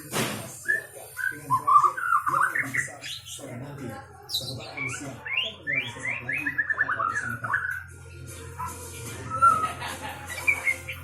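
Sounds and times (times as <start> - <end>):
bird singing whistled notes: 9.3 - 11.0.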